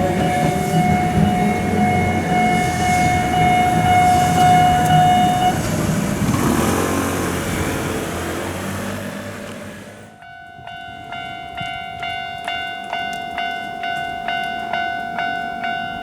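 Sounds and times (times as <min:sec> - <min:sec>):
high ringing tone: 0:00.0 - 0:05.6
train wheels rumbling: 0:00.0 - 0:16.0.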